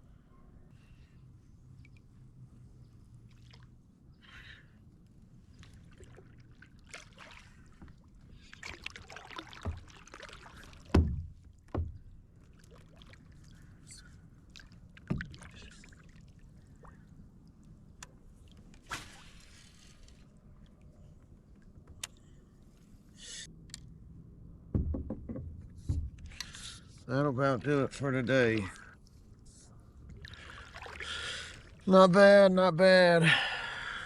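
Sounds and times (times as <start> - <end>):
paddle splashing water: 5.4 - 20.7, 28.4 - 32.0
knocks on kayak: 10.9 - 12.0, 24.7 - 26.2.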